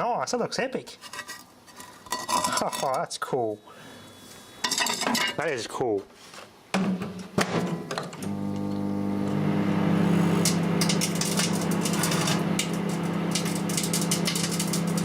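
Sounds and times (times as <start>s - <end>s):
microwave oven humming: 8.2s - 15.0s
metal arcing crackles and snaps: 10.3s - 15.0s.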